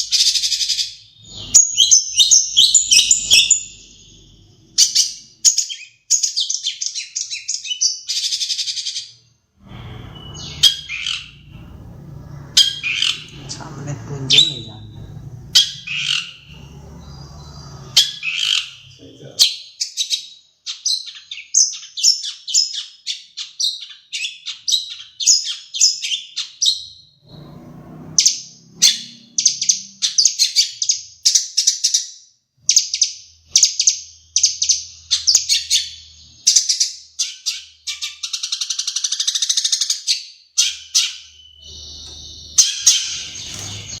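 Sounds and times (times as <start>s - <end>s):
buzzy rattling bird trill: 0.0s - 5.8s, 10.1s - 18.9s, 41.0s - 44.0s
bird singing sharp high chirps: 0.0s - 31.8s, 32.8s - 44.0s.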